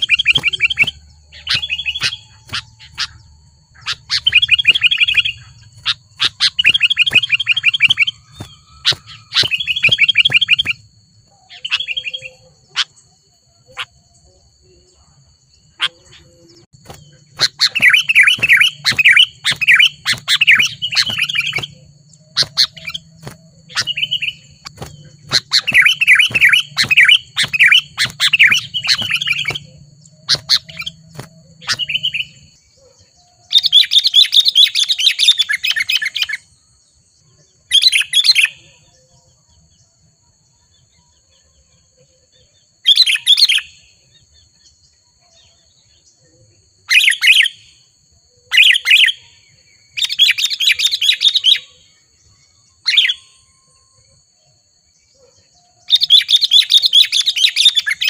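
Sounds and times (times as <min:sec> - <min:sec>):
bulbuls calling: 0:00.0 - 0:36.4.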